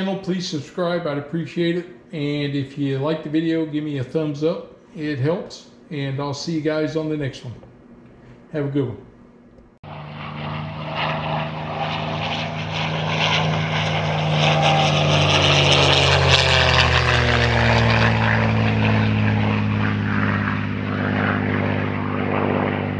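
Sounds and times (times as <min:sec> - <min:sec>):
deep piston engine drone: 0:09.8 - 0:22.9.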